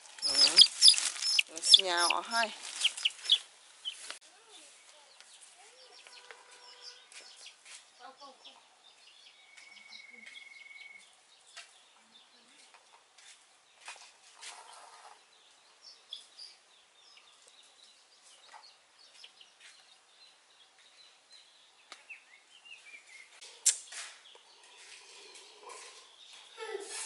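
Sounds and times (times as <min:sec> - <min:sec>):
sharp click: 0:23.6 - 0:24.1.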